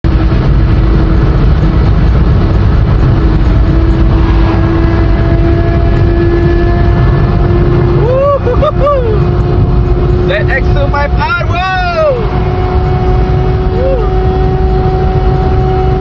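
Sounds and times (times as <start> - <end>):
motorcycle engine at high revs: 0.1 - 16.0.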